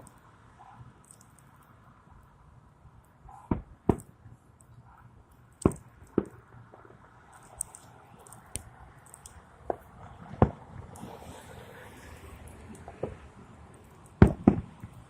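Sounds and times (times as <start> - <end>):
fireworks exploding: 14.2 - 15.0.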